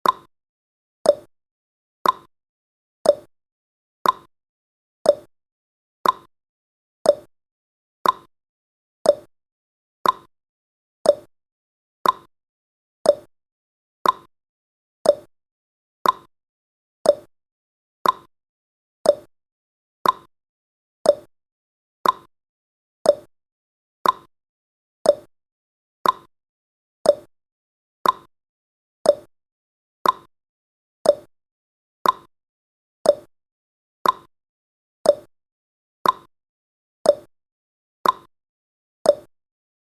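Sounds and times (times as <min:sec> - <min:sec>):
clock ticking: 0:02.0 - 0:02.3, 0:04.0 - 0:04.3, 0:06.0 - 0:06.3, 0:08.0 - 0:08.3, 0:10.0 - 0:10.3, 0:12.0 - 0:12.3, 0:14.0 - 0:14.3, 0:15.1 - 0:15.3, 0:16.0 - 0:16.3, 0:18.0 - 0:18.3, 0:20.0 - 0:20.3, 0:21.1 - 0:21.3, 0:22.0 - 0:22.3, 0:24.0 - 0:24.3, 0:26.0 - 0:26.3, 0:28.0 - 0:28.3, 0:29.1 - 0:29.3, 0:30.0 - 0:30.3, 0:31.1 - 0:31.3, 0:32.0 - 0:32.3, 0:33.1 - 0:33.3, 0:34.0 - 0:34.3, 0:35.1 - 0:35.3, 0:36.0 - 0:36.3, 0:38.0 - 0:38.3, 0:39.1 - 0:39.3.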